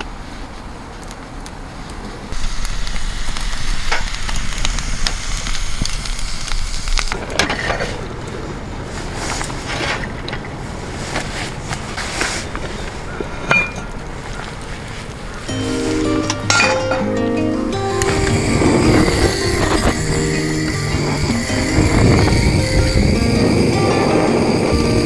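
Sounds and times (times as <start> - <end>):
wood fire crackling and popping: 2.6 - 7.2, 18.0 - 25.0
wind rumble on microphone: 18.1 - 25.0.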